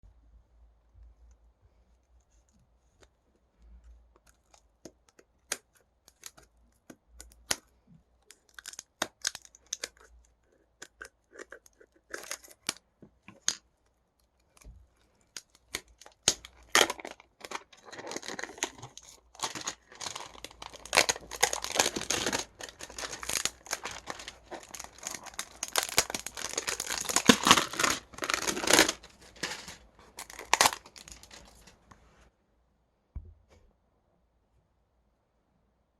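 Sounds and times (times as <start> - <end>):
packaging clicks and rustles: 14.4 - 31.8
wrapping tearing and crinkling: 14.5 - 31.8.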